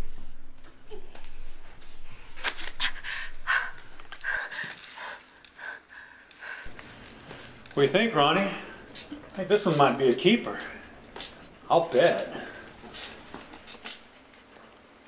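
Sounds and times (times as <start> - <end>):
person panting heavily: 2.8 - 9.9, 12.2 - 13.8.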